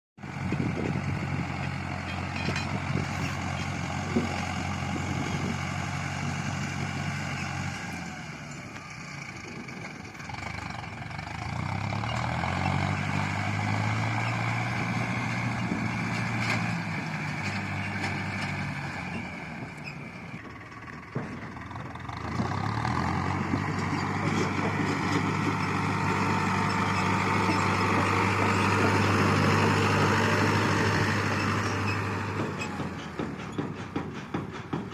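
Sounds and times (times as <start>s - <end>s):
tractor diesel engine running: 0.2s - 34.9s.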